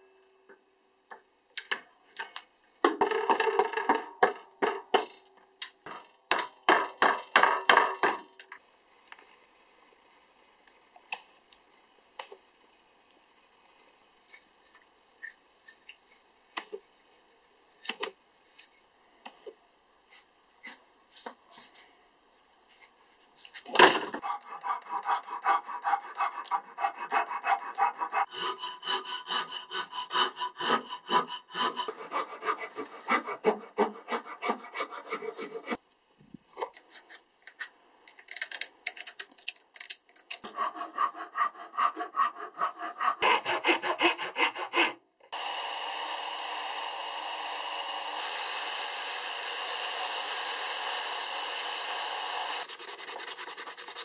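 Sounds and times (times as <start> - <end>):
hand file scraping wood: 24.2 - 35.8, 40.4 - 45.0, 51.8 - 54.0.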